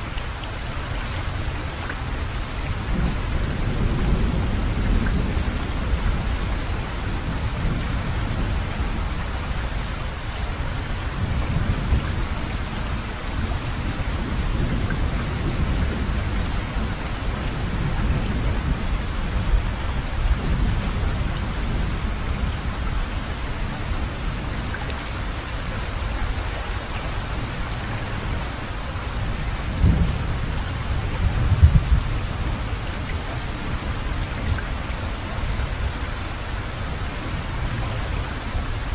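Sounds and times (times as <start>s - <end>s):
heavy rain falling: 0.0s - 38.9s
thunder rumbling: 29.2s - 32.8s.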